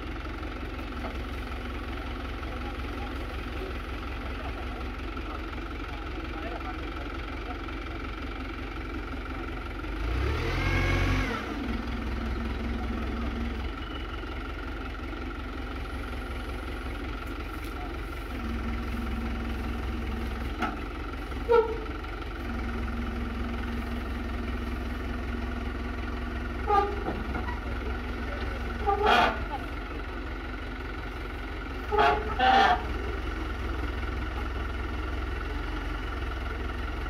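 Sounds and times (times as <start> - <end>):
diesel truck engine running: 0.0 - 37.0
engine revving: 10.0 - 11.9.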